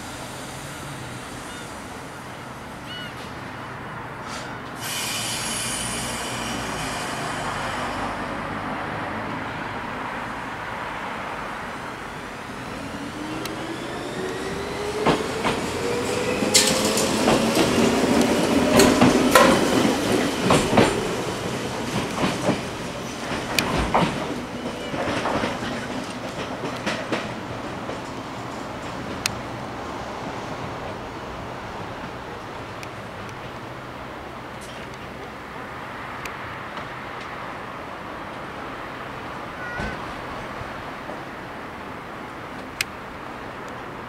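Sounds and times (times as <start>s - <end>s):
electric railcar motor whine: 11.6s - 19.0s
wheels clicking over rail joints: 13.1s - 29.5s.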